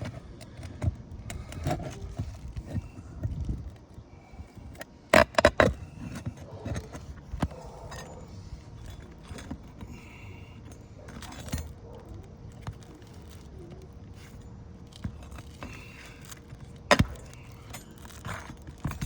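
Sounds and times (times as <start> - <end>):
light taps and scrapes: 4.5 - 19.0
metallic clinks of nails: 14.2 - 19.0.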